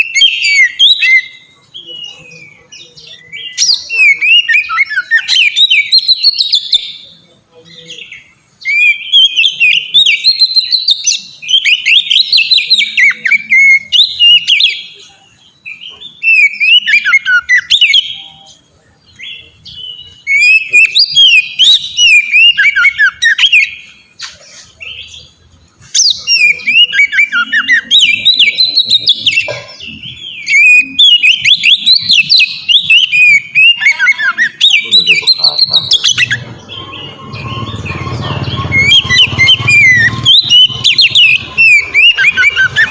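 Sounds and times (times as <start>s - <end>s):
bird singing whistled phrases: 0.0s - 7.1s, 7.9s - 23.9s, 24.7s - 42.9s.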